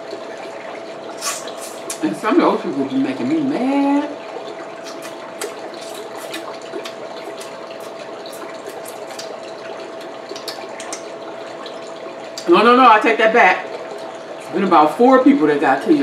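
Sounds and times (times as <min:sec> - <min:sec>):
faint constant hum: 0:00.0 - 0:16.0
clicks and smacks of eating crab: 0:04.8 - 0:11.2.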